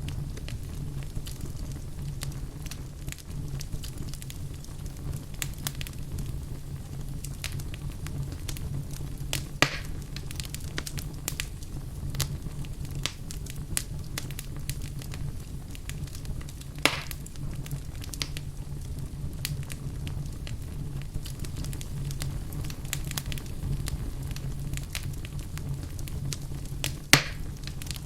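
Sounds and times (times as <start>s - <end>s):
low fire rumble: 0.0s - 28.0s
wood fire crackling: 0.0s - 28.0s
loud wood snaps: 9.3s - 10.0s, 16.8s - 17.3s, 27.1s - 28.0s.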